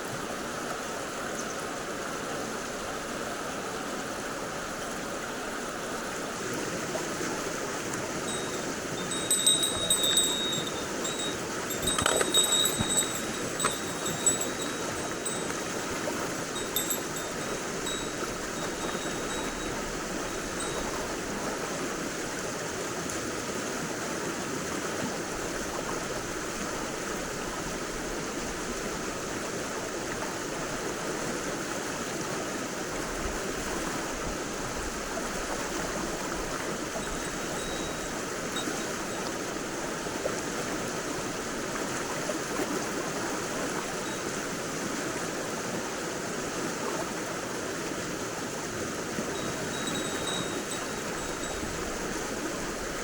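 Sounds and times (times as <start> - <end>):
stream water flowing: 0.0 - 53.0
small bell tinkling: 8.2 - 21.2, 37.0 - 39.4, 49.3 - 52.2.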